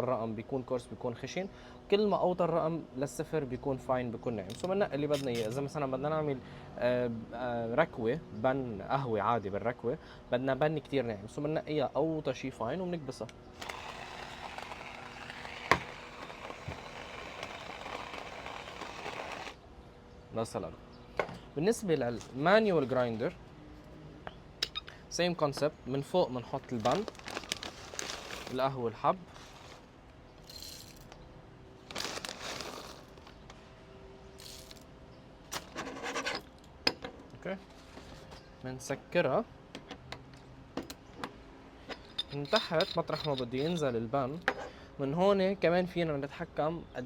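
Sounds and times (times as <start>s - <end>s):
electric coffee grinder running: 13.6s - 19.6s.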